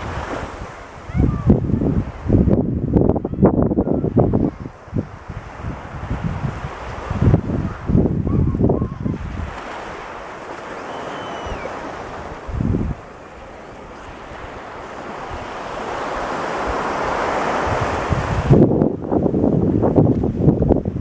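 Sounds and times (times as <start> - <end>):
surf breaking on sandy beach: 0.0 - 21.0
wind buffeting microphone: 0.0 - 21.0.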